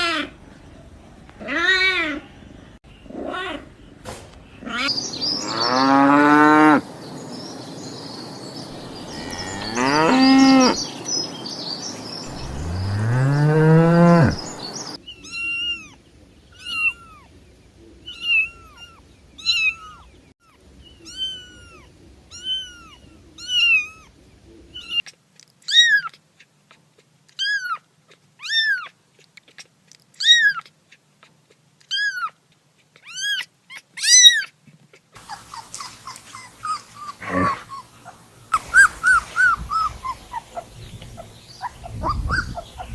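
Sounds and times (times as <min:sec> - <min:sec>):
long low animal calls: 0:08.8 - 0:10.8, 0:12.3 - 0:16.0, 0:35.2 - 0:42.9.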